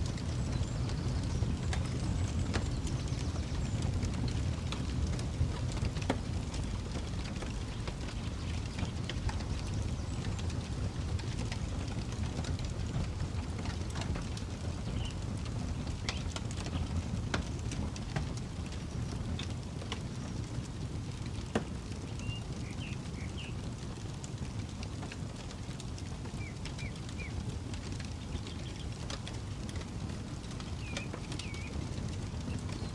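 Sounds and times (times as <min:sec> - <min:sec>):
campfire crackling and popping: 0:00.0 - 0:32.9
bird chirping: 0:22.2 - 0:23.5, 0:30.8 - 0:31.8.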